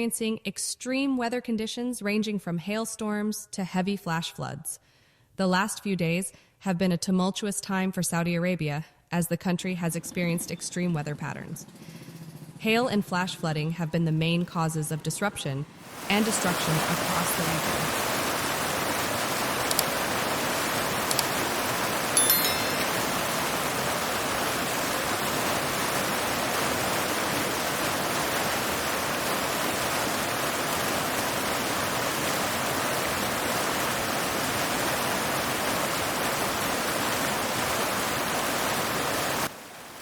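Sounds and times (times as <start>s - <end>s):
rushing rain or floodwater: 15.8s - 40.0s.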